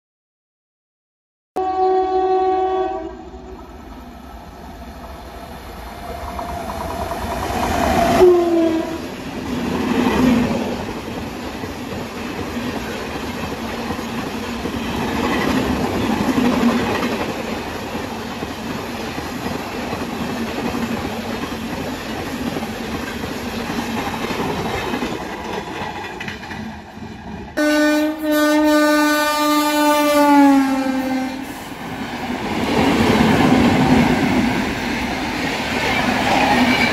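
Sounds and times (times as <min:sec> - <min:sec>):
locomotive horn: 0:01.6 - 0:03.4, 0:08.1 - 0:09.0, 0:27.6 - 0:31.6
train coaches clattering over rails: 0:09.5 - 0:27.6.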